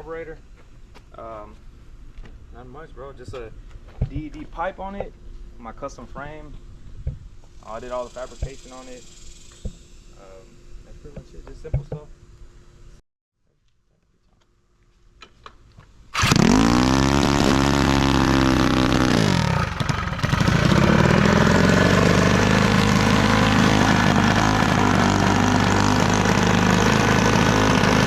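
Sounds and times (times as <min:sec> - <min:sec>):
mini bike engine revving: 0:16.2 - 0:28.0.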